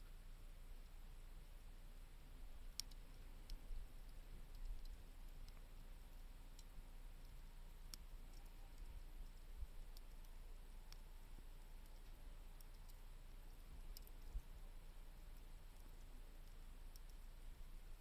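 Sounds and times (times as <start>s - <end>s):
campfire crackling pops: 2.6s - 5.7s.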